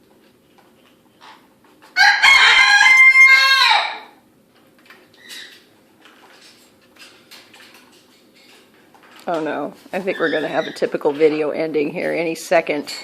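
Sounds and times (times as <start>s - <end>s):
rooster crowing: 2.0s - 4.2s.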